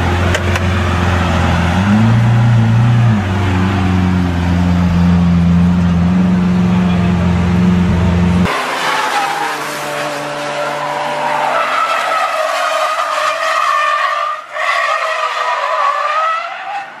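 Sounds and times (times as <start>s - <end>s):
car engine: 0.0s - 17.0s
car tyres squealing: 8.5s - 17.0s.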